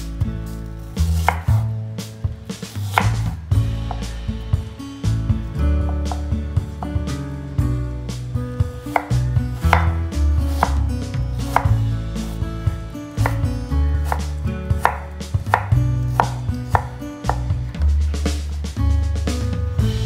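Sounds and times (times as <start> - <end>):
knife striking cutting board: 1.0 - 4.2, 5.8 - 7.0, 8.9 - 12.4, 13.1 - 17.6.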